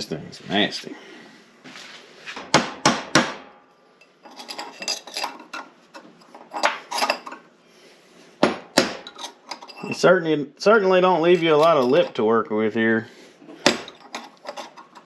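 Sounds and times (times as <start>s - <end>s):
hammer striking metal punch: 2.5s - 3.6s, 8.4s - 9.1s, 13.6s - 14.0s.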